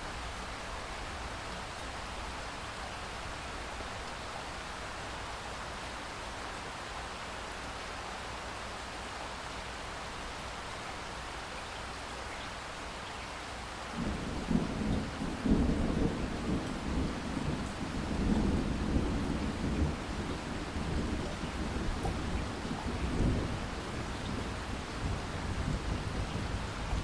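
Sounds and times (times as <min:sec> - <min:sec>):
rain hiss: 0:00.0 - 0:27.0
rolling thunder rumble: 0:14.0 - 0:27.0.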